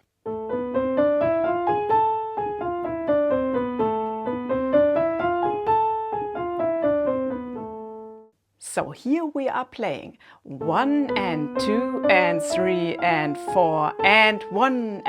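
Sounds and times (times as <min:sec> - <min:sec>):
piano playing a scale: 0:00.0 - 0:08.3, 0:10.6 - 0:15.0.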